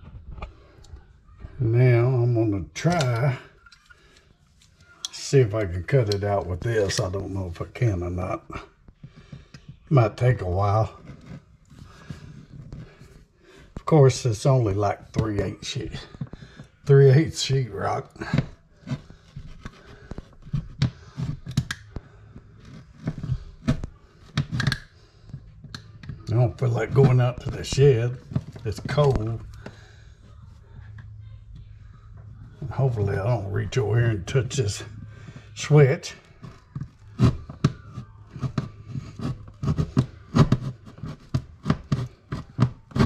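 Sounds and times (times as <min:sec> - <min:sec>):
hand tool cutting drywall: 0:37.1 - 0:43.0.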